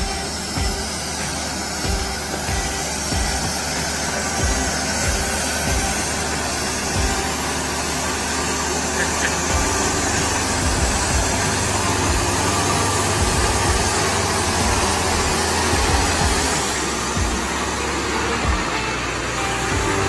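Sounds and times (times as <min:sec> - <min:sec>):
constant wash of noise: 0:00.0 - 0:20.0
vehicle engine humming: 0:00.0 - 0:20.0.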